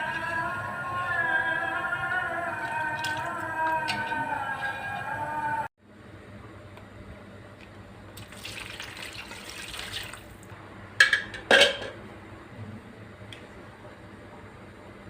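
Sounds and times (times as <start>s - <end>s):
water running from tap into sink: 8.2s - 10.4s.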